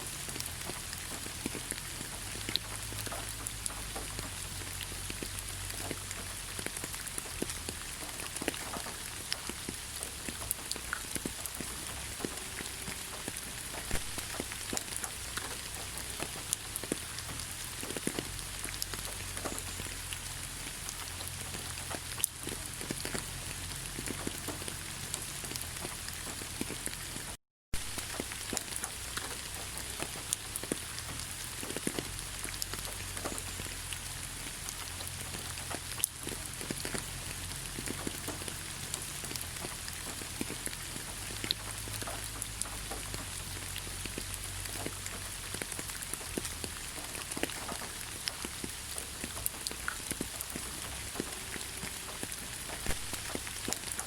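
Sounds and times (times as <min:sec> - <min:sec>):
rain hissing in forest: 0:00.0 - 0:54.0
raindrops ticking close by: 0:00.0 - 0:54.0.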